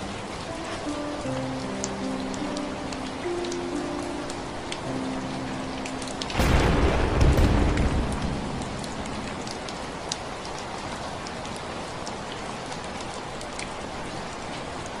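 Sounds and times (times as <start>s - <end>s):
steady rainfall: 0.0s - 15.0s
water drips: 0.0s - 15.0s
thunder rumble: 6.2s - 10.8s.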